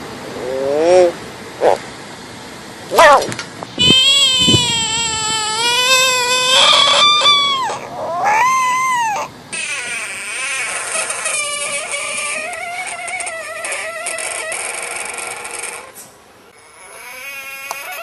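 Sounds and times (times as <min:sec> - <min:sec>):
animal screaming: 0:02.9 - 0:16.0, 0:16.6 - 0:18.0.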